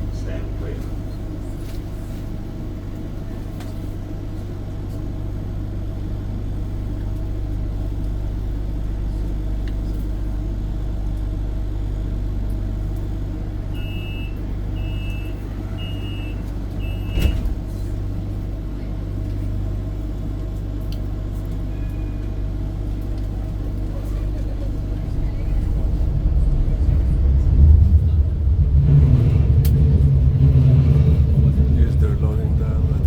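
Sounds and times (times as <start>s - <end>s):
tram rumbling: 0.0s - 33.0s
short tone: 13.7s - 17.4s, 21.7s - 22.3s.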